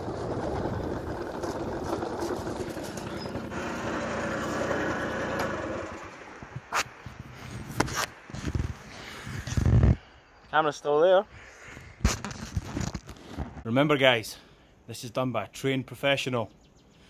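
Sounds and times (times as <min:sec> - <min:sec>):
moped engine running: 0:00.0 - 0:06.5.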